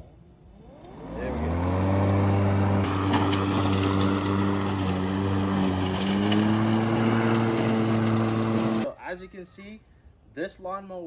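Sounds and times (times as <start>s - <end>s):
electric lawn mower humming: 0.6s - 8.9s.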